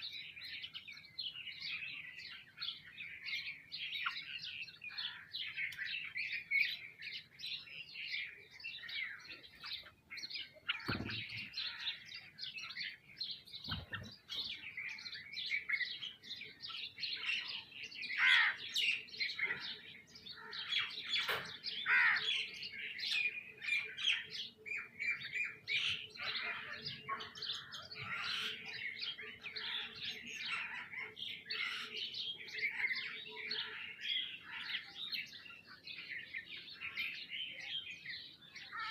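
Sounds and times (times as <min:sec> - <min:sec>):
small birds chirping: 0:00.0 - 0:38.9
soft thumps: 0:10.9 - 0:11.5.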